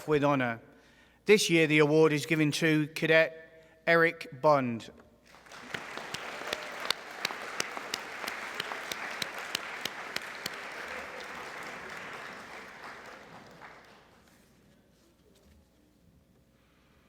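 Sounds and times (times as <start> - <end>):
audience applauding: 5.3 - 14.4
nearby hands clapping sharply: 5.4 - 14.1.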